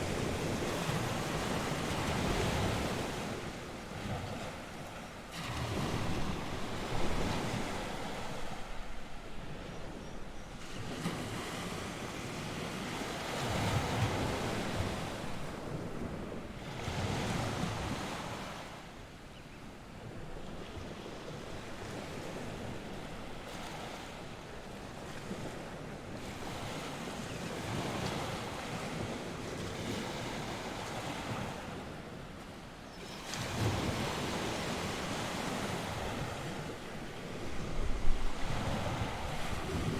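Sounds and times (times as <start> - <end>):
waves washing onto shore: 0.0 - 19.2, 19.8 - 39.9
wind blowing across microphone: 0.0 - 19.2, 19.8 - 39.9.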